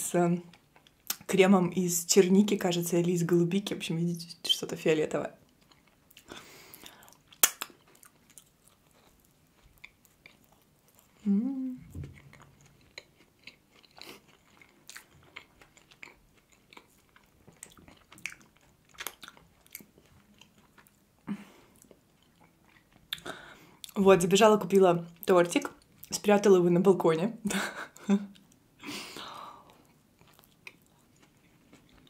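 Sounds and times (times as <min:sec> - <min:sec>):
chewing with wet mouth clicks: 0:00.5 - 0:01.3, 0:05.5 - 0:11.2, 0:11.9 - 0:21.0, 0:21.8 - 0:24.0, 0:29.7 - 0:32.0.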